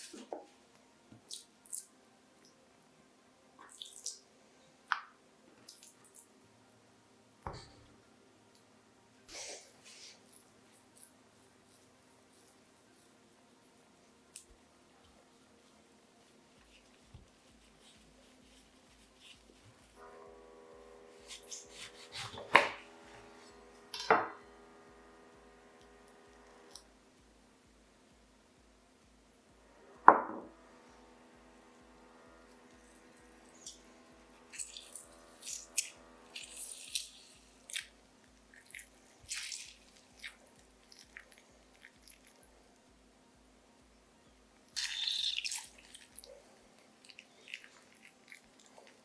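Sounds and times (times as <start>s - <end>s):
liquid dripping and splashing: 3.6s - 4.2s, 47.0s - 49.0s
faint hum: 6.2s - 49.0s.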